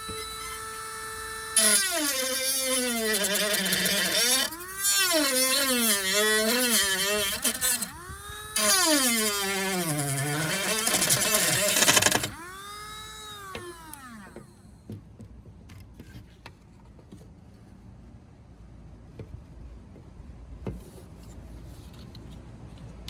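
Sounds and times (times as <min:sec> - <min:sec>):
cutting disc grinding: 0:00.0 - 0:14.6
rotary tool whining: 0:00.0 - 0:14.8.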